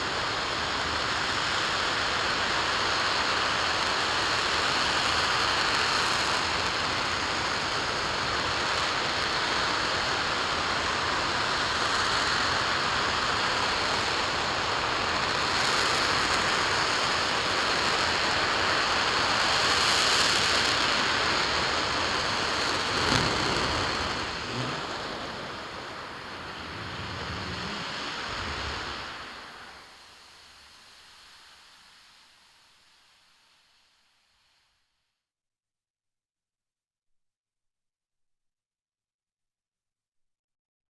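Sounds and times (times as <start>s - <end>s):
rocket engine roaring: 19.7s - 29.8s.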